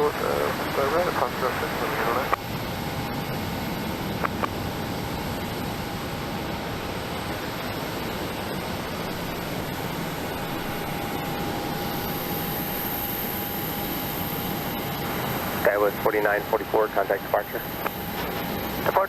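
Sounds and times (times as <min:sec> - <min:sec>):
high whine: 0:00.0 - 0:19.0
jet engines roaring: 0:00.0 - 0:19.0.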